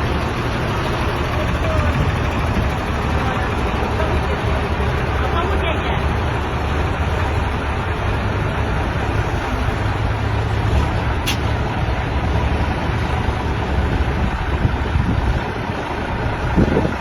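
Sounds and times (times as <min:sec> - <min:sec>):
truck engine rumbling: 0:00.0 - 0:17.0
sharp click: 0:11.2 - 0:11.5.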